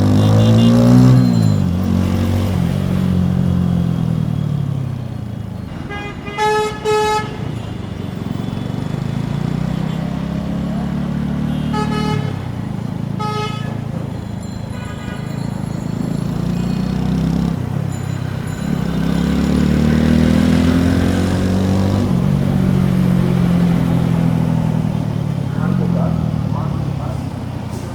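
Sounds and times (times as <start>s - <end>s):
vehicle horn beeping: 0.0s - 1.7s, 5.6s - 17.0s.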